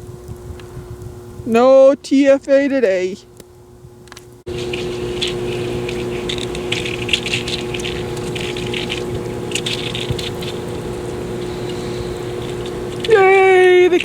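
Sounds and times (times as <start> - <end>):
water pump humming: 3.8 - 14.0
churned water splashing: 4.5 - 14.0.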